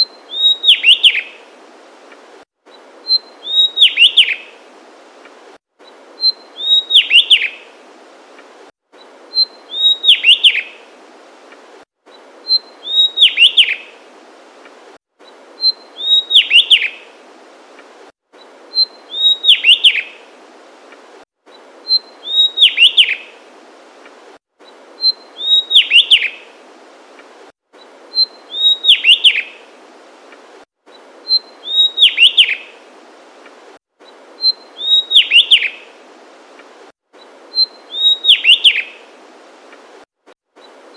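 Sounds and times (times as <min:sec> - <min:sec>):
bird singing high whistles: 0:00.0 - 0:01.3, 0:03.0 - 0:04.4, 0:06.2 - 0:07.6, 0:09.3 - 0:10.7, 0:12.5 - 0:13.8, 0:15.6 - 0:17.0, 0:18.7 - 0:20.1, 0:21.8 - 0:23.2, 0:25.0 - 0:26.4, 0:28.1 - 0:29.5, 0:31.3 - 0:32.7, 0:34.4 - 0:35.8, 0:37.5 - 0:39.0.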